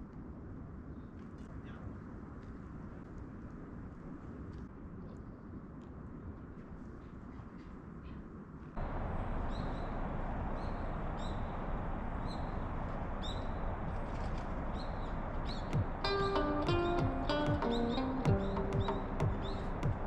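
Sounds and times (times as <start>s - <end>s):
small bird chirping: 8.8s - 20.0s
steady rushing noise: 8.8s - 20.0s.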